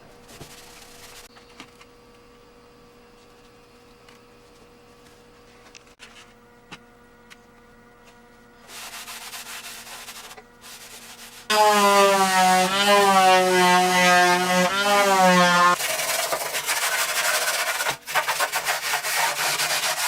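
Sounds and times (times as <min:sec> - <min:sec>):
scratchy rubbing on sheet steel: 0:08.7 - 0:20.0
power tool whining on metal: 0:11.5 - 0:15.8.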